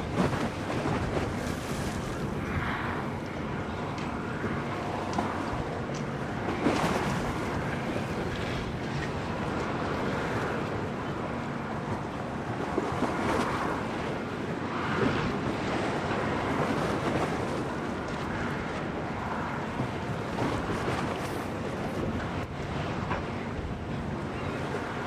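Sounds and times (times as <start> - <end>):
waves washing: 0.0 - 25.0
wind buffeting microphone: 0.0 - 25.0.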